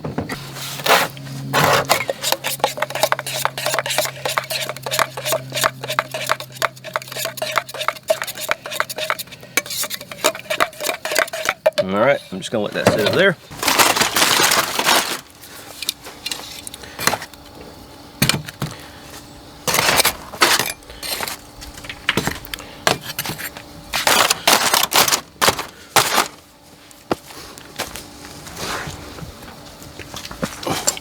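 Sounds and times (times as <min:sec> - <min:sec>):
cookware scraping: 0:00.8 - 0:15.2
camp cookware clinking and knocking: 0:01.9 - 0:13.3.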